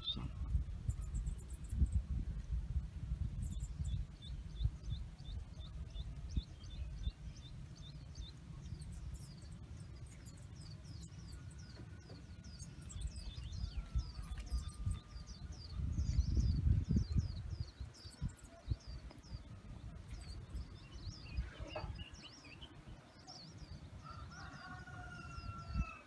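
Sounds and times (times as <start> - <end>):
steady low rumble: 0.0 - 24.0
small birds chirping: 0.0 - 26.0.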